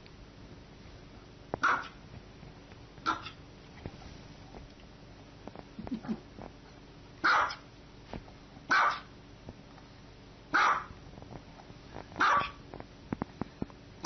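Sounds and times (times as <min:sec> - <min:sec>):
small dog barking: 0:01.6 - 0:02.0, 0:03.0 - 0:03.4, 0:07.2 - 0:07.7, 0:08.7 - 0:09.1, 0:10.5 - 0:11.0, 0:12.2 - 0:12.6.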